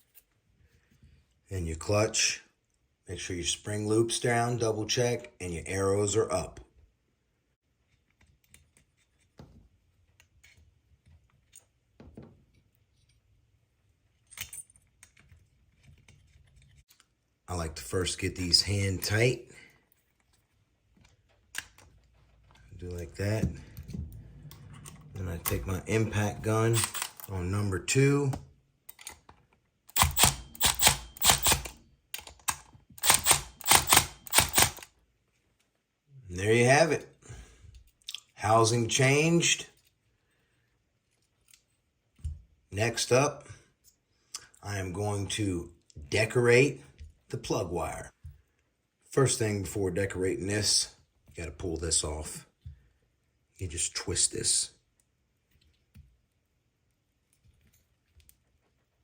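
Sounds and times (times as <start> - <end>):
small metal parts clicking and knocking: 14.0 - 17.1, 26.7 - 27.3, 28.9 - 34.9
impact driver hammering: 30.0 - 31.8, 33.0 - 34.8.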